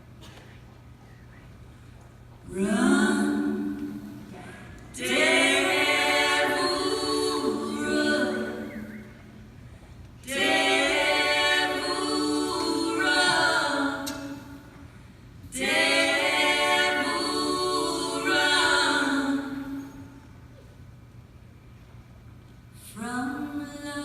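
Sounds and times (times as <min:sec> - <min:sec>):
women singing a cappella harmony: 0:02.4 - 0:09.6, 0:10.2 - 0:14.9, 0:15.5 - 0:20.3, 0:22.8 - 0:24.0.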